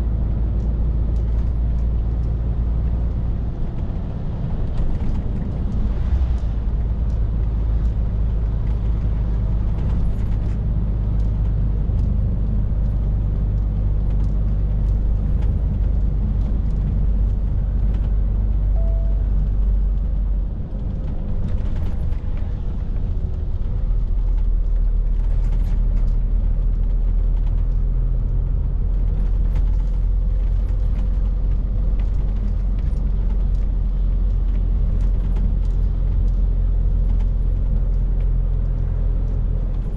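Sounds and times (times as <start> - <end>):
lorry engine drone: 14.2 - 24.2.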